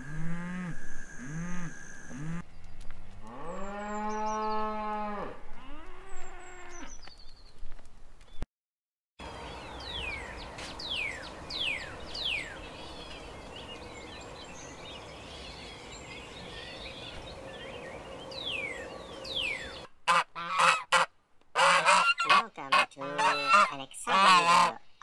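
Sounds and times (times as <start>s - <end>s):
geese honking: 20.1s - 24.8s.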